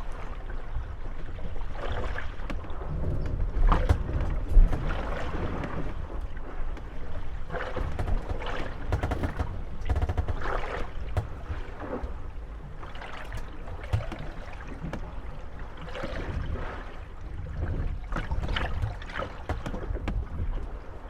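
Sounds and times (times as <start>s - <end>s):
waves lapping at boat hulls: 0.0s - 21.0s
wooden boats creaking and knocking: 0.0s - 21.0s.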